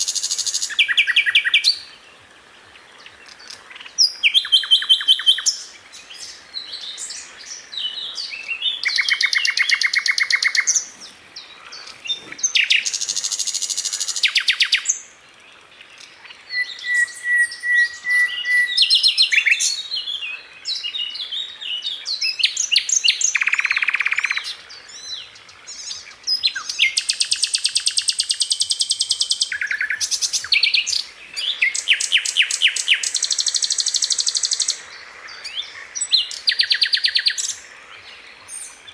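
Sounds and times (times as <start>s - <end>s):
bird sharp chirps: 3.4s - 15.0s
bird steady whistle: 16.5s - 19.6s, 31.6s - 34.8s.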